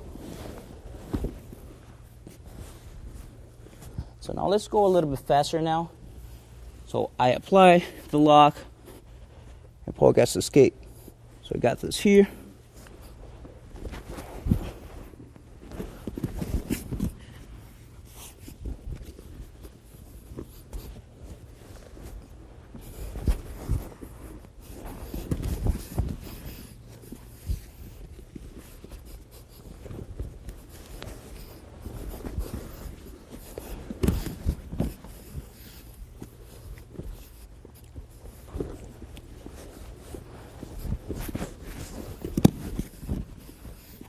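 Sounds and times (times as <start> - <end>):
cloth rustling: 0.0 - 6.9, 12.3 - 44.0
bodies shuffling on mats: 0.0 - 44.0
dull thumps on mat: 33.9 - 35.6.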